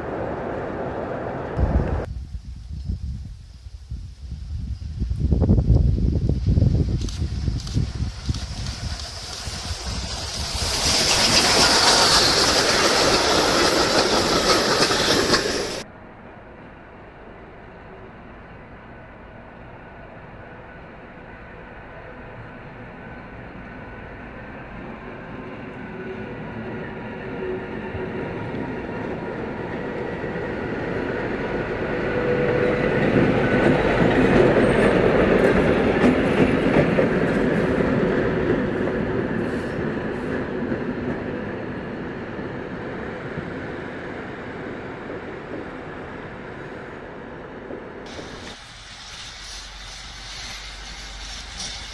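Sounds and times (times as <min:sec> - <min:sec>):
train rumble: 0:00.0 - 0:51.9
wheels clicking over rail joints: 0:07.0 - 0:15.9, 0:32.8 - 0:41.6.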